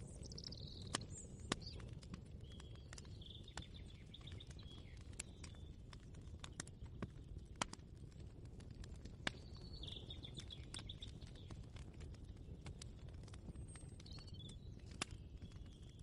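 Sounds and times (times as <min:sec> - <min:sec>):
bird chirping: 0:00.0 - 0:05.7, 0:09.4 - 0:11.6.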